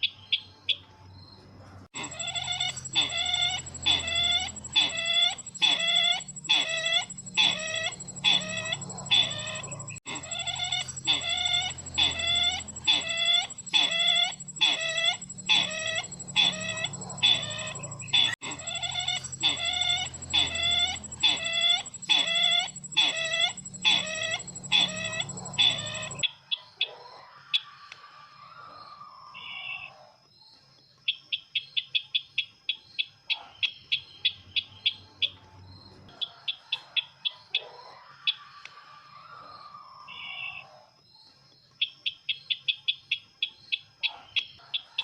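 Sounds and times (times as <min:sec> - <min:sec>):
recorded bird call: 0:00.0 - 0:45.0
thin high tone: 0:02.0 - 0:26.2.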